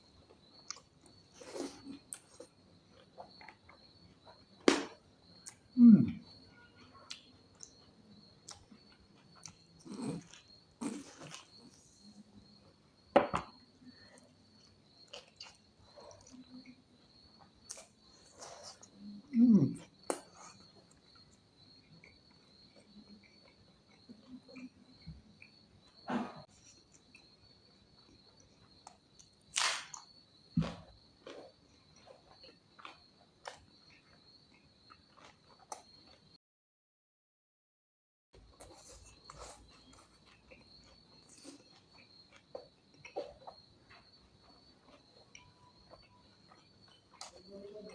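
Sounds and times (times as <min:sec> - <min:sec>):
crickets chirring: 0:00.0 - 0:36.4, 0:38.4 - 0:47.9
person chewing food: 0:00.1 - 0:19.0, 0:19.6 - 0:27.4, 0:28.0 - 0:36.4, 0:38.4 - 0:47.9
mouth clicks and smacks chewing: 0:38.4 - 0:47.9.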